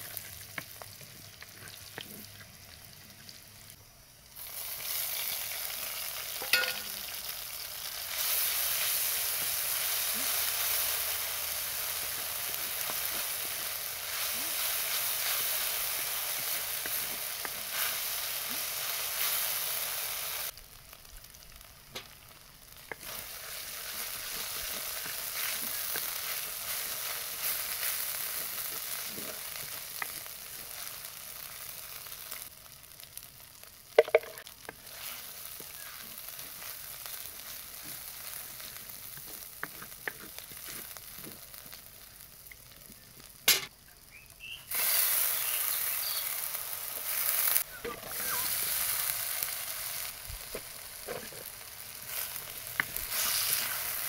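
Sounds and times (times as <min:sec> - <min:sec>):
oil sizzling: 0:00.0 - 0:54.0
wooden spoon stirring: 0:22.9 - 0:30.9, 0:37.4 - 0:41.4.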